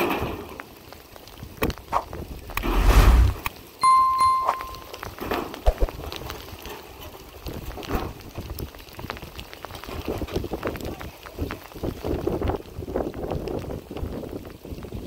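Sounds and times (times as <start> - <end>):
rain pattering: 0.0 - 15.0
short high beep: 3.8 - 5.0.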